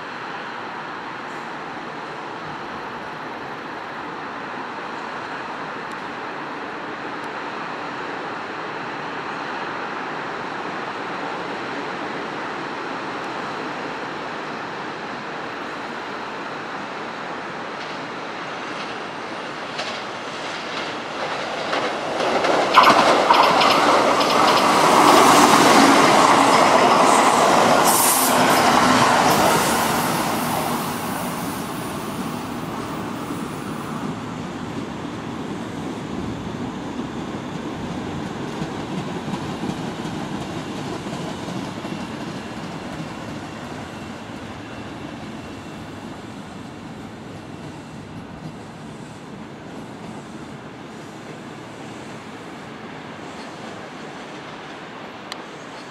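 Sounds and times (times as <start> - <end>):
train passing at speed: 0.0 - 55.9
wheels clacking over rail joints: 19.6 - 29.5.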